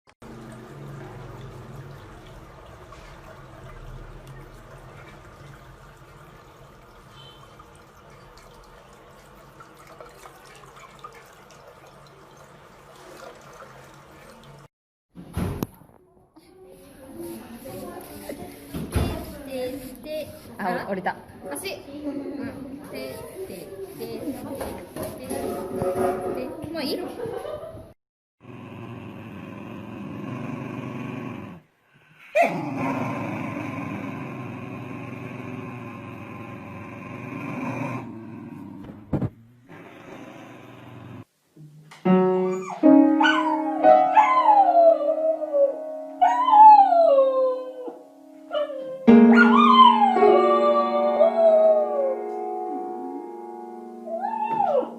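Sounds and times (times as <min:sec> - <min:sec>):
water trickling: 0:00.2 - 0:14.7
dog crying: 0:42.4 - 0:52.0, 0:54.1 - 0:54.9.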